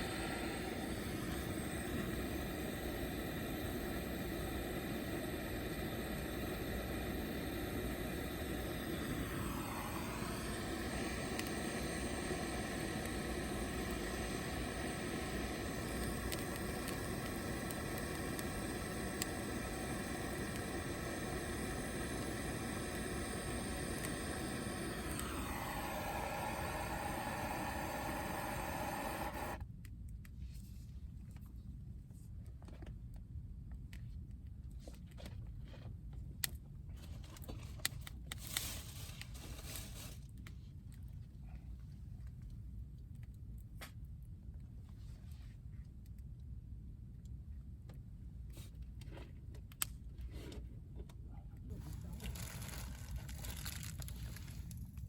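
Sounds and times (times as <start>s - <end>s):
small clicks and rustles: 30.0s - 46.3s, 47.2s - 55.0s.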